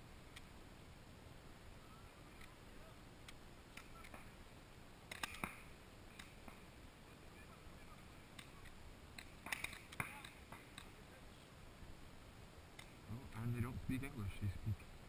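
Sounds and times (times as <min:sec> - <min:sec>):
distant paintball markers firing: 0:08.3 - 0:10.9.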